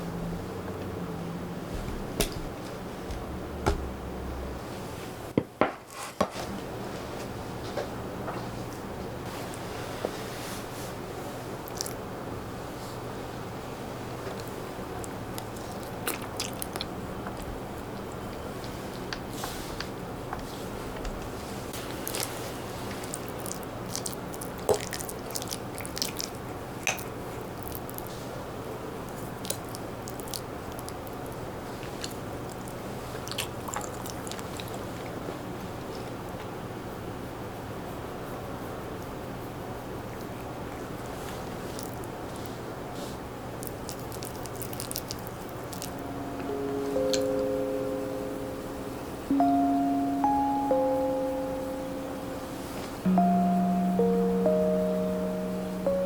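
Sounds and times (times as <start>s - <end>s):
steady low hum: 0.0s - 5.4s, 36.9s - 56.0s
soft chewing: 11.4s - 12.1s, 14.2s - 19.9s, 21.8s - 36.5s, 39.0s - 46.5s
low hum: 45.7s - 56.0s.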